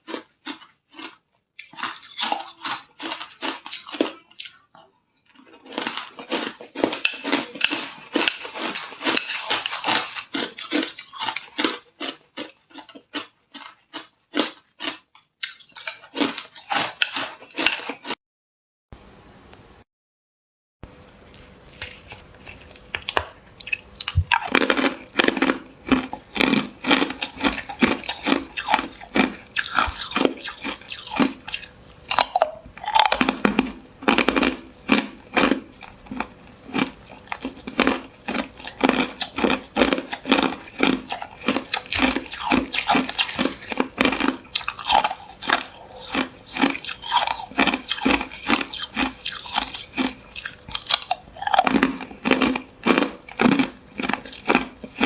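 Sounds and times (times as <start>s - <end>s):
ice being chewed: 0.0s - 18.2s, 21.1s - 55.0s.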